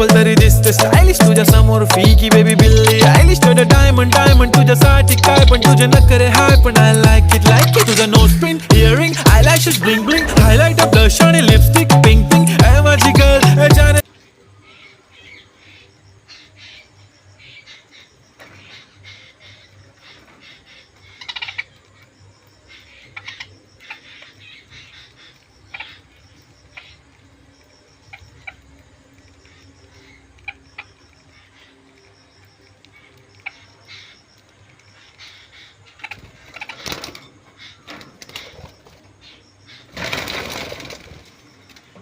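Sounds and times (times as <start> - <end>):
sharp clicks: 0.1 - 13.6
parrots chirping and squawking: 2.8 - 8.1, 9.0 - 10.7, 17.5 - 21.8, 22.7 - 27.0, 34.9 - 40.2
parrots squabbling: 18.6 - 21.7, 22.7 - 26.0.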